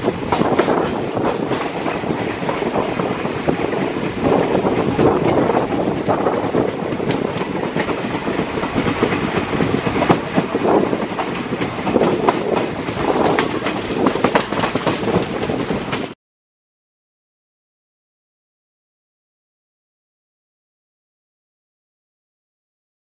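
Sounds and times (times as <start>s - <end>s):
train running noise: 0.0s - 16.2s
train wheels clacking over rail joints: 0.0s - 16.2s.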